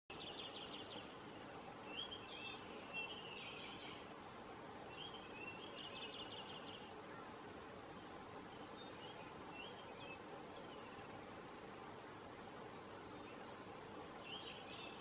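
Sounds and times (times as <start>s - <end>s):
birds trilling and chirping: 0.1s - 15.0s
faint outdoor hiss: 0.1s - 15.0s.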